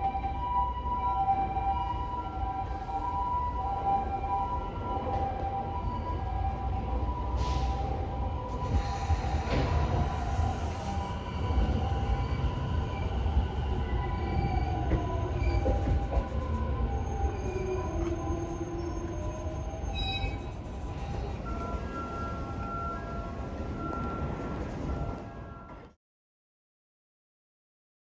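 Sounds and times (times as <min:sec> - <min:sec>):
low train rumble: 0:00.0 - 0:26.0
train wheels squealing: 0:08.5 - 0:25.9.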